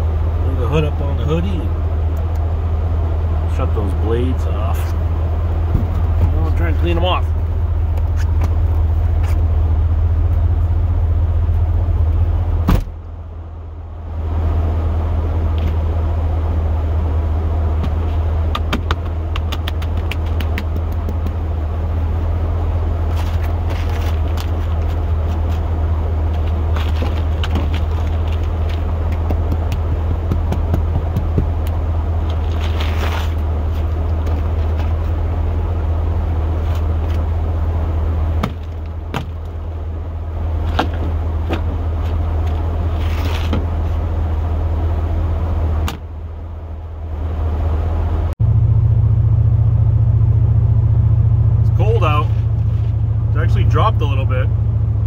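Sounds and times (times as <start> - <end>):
truck idling: 0.0 - 55.0
ice scraping off wiper blades: 32.3 - 35.1, 42.0 - 44.0.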